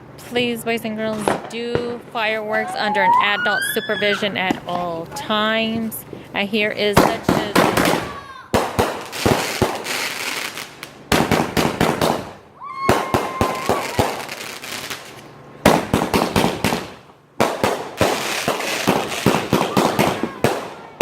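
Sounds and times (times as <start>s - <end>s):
firework bangs and crackling: 1.0s - 2.6s, 6.8s - 21.0s.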